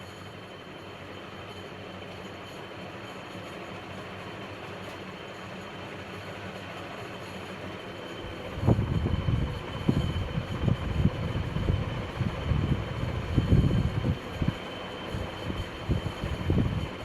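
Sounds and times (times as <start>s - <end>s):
ceiling fan humming: 0.0s - 17.0s.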